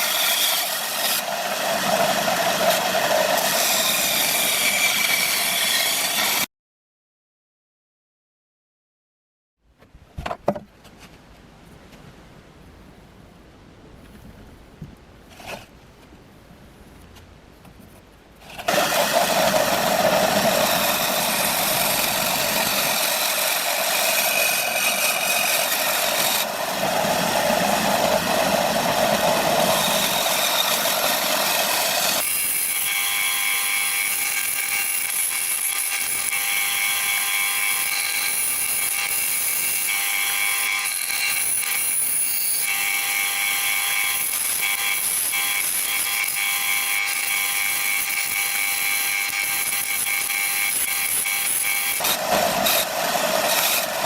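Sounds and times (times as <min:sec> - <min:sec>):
electric power tool running: 0:18.7 - 0:32.3, 0:46.2 - 0:54.0.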